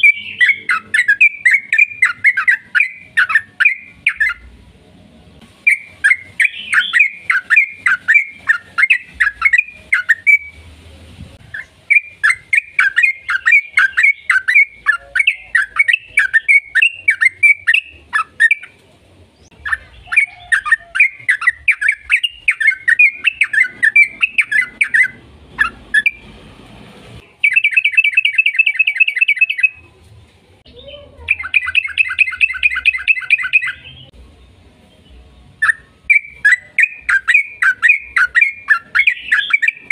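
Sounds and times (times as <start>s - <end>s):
fast bird trills: 0.0s - 4.4s, 5.7s - 10.6s, 19.6s - 26.2s, 31.3s - 33.9s, 35.6s - 39.9s
bird singing quick chirping notes: 0.0s - 4.5s, 5.6s - 10.7s, 11.4s - 18.8s, 19.4s - 26.3s, 27.2s - 29.9s, 30.7s - 34.2s, 34.9s - 39.9s.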